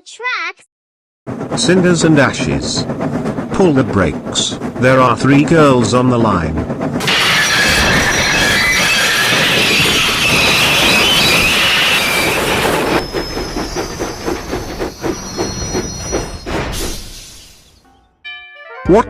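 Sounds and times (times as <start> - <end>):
rhythmic train wheel knocks: 1.3 - 17.2
train brakes screeching: 7.0 - 17.8.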